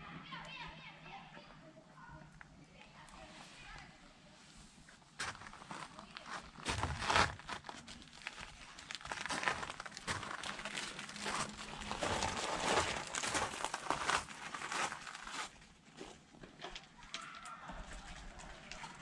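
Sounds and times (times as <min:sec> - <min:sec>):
material crinkling and rustling: 0:04.7 - 0:19.0.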